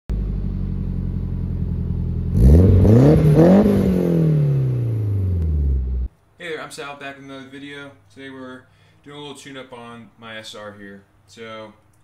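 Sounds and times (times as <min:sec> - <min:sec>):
car engine idling and revving: 0:00.1 - 0:06.1.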